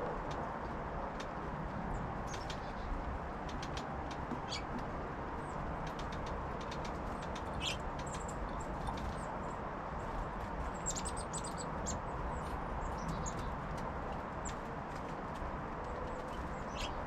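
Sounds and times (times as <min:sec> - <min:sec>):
songbirds chirping: 0:00.2 - 0:17.0
buzzy bird calls: 0:07.5 - 0:07.8, 0:16.5 - 0:17.0.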